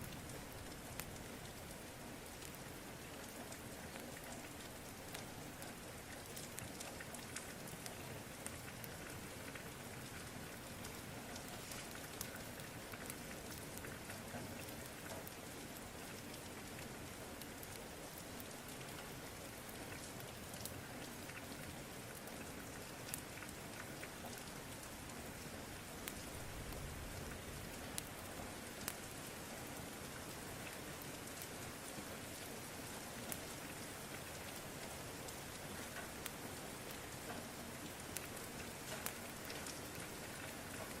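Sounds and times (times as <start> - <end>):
rain hiss: 0.0 - 41.0
wood fire popping and crackling: 0.0 - 41.0.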